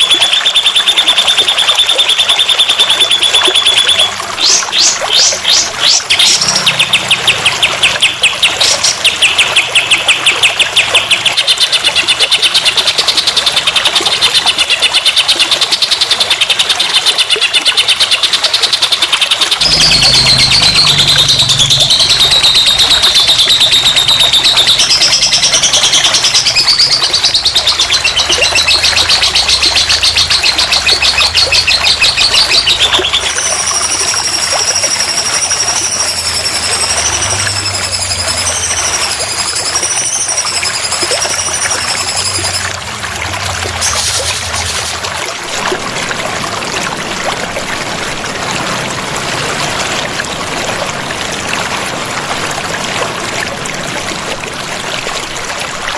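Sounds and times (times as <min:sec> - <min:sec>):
songbird trilling: 0:19.6 - 0:42.8.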